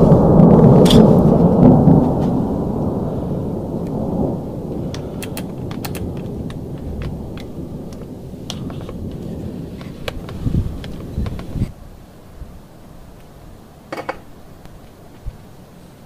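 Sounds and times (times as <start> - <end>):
thunder rumbling: 0.0 - 14.6
rain ticks on surfaces: 3.8 - 11.7.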